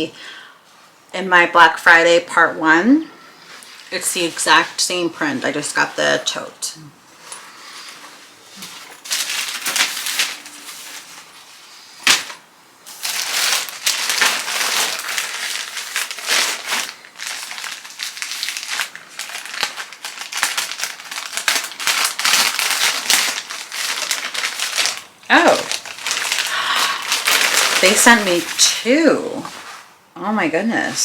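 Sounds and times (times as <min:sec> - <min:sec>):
packaging crinkling and rustling: 0:03.5 - 0:04.8, 0:07.2 - 0:29.9.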